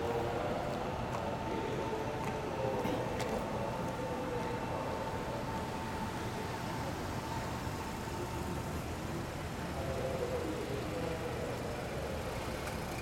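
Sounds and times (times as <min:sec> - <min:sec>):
traffic rumble: 0:04.7 - 0:13.0.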